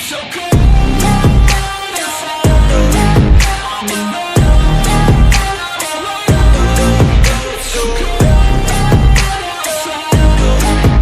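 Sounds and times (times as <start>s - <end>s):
pop music with heavy bass beat: 0.0s - 11.0s.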